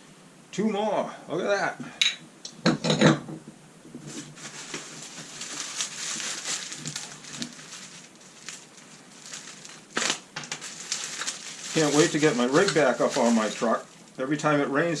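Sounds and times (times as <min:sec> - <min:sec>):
packing material crinkling: 0:04.0 - 0:14.2.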